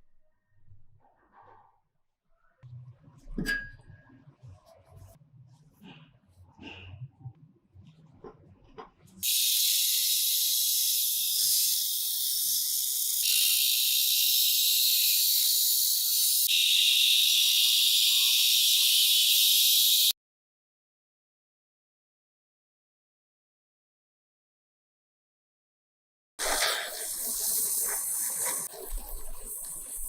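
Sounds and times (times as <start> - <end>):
loud spray hiss: 9.2 - 20.1, 26.4 - 30.0.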